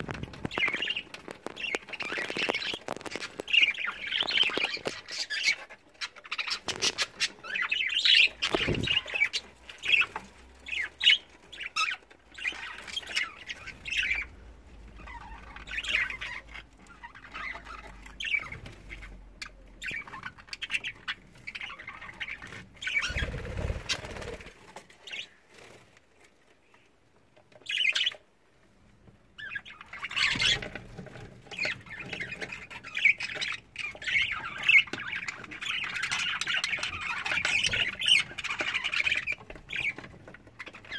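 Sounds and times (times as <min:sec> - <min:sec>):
budgerigars chattering and squawking: 0:00.0 - 0:24.4, 0:27.6 - 0:28.2, 0:29.4 - 0:40.9
wing flutters and clicks: 0:23.0 - 0:24.7.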